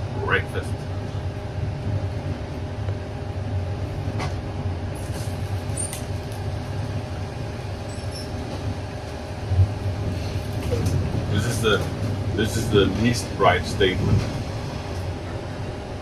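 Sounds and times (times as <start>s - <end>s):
train carriage rumble: 0.0s - 16.0s
faint high squeaks: 7.9s - 8.4s.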